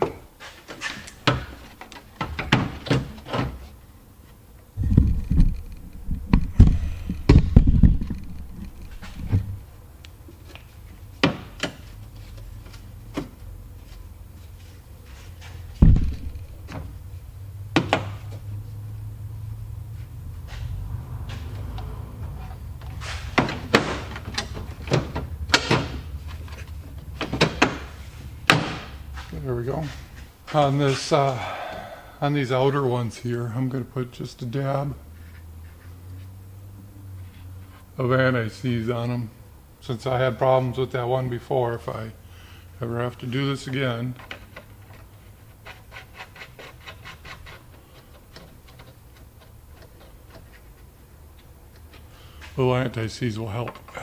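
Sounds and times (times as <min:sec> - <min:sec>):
low thumps and handling noise: 0:00.0 - 0:31.4, 0:43.5 - 0:54.0
taillight knocks and clunks: 0:04.8 - 0:09.7, 0:15.8 - 0:17.0, 0:22.8 - 0:30.2.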